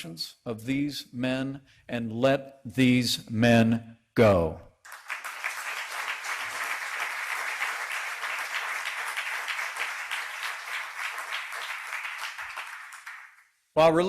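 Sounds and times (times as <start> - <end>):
audience applauding: 4.9 - 13.5.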